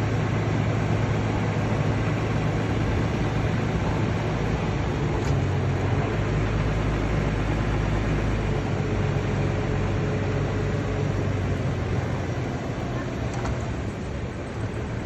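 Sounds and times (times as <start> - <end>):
heavy diesel machinery running: 0.0 - 15.0.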